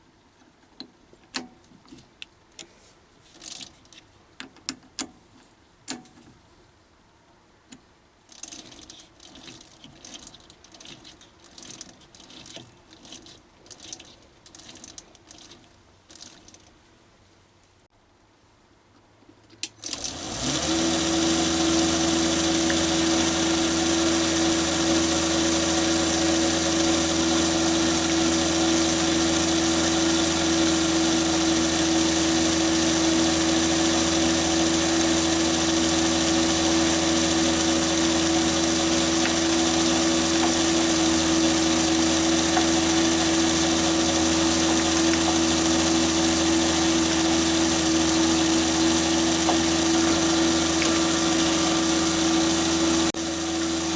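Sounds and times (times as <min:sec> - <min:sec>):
lathe motor humming and whining: 0:19.8 - 0:53.9.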